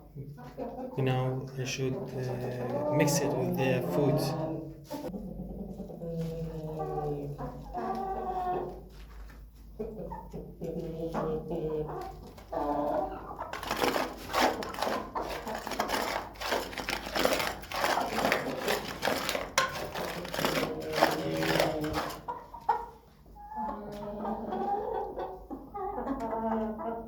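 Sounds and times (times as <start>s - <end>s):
chickens clucking: 0.0s - 27.0s
feed being stirred rustling: 13.4s - 22.4s.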